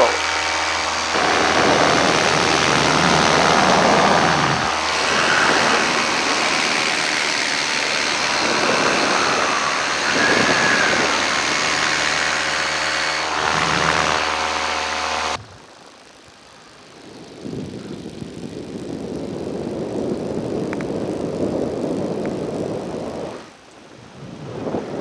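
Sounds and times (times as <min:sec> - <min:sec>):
paramotor engine droning: 0:00.0 - 0:23.5.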